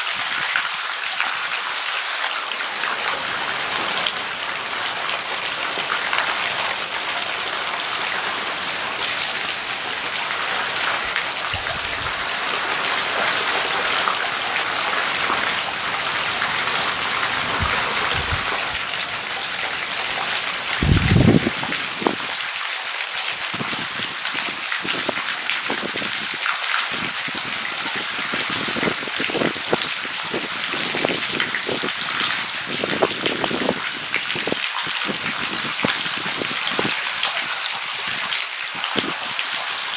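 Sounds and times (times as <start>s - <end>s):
heavy rain falling: 0.0s - 39.9s
short low thumps: 20.8s - 21.6s.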